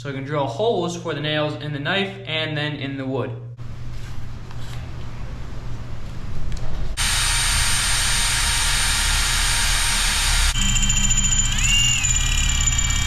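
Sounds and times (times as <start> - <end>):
power tool whining: 7.0 - 13.0.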